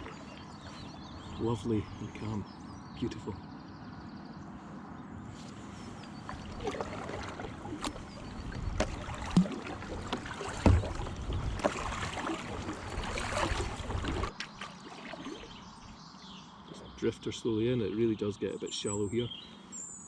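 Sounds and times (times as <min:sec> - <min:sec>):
paddle splashing and dripping: 0:00.0 - 0:01.4, 0:05.9 - 0:15.9
paddle knocking on kayak: 0:06.1 - 0:14.3.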